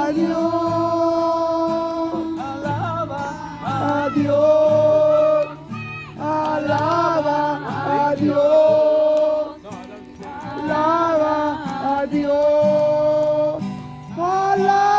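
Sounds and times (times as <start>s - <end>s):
voices singing praise song: 0.0s - 14.9s.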